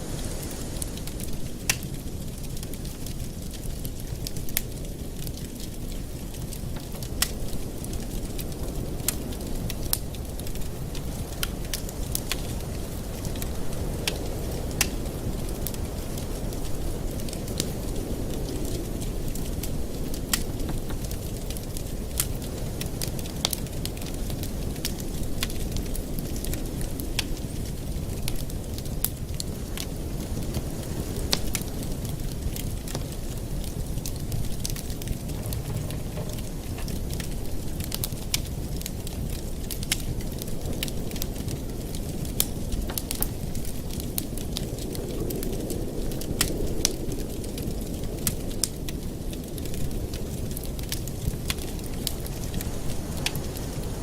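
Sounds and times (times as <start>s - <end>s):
fire crackling and popping: 0.0s - 54.0s
fire flames rushing: 0.0s - 54.0s.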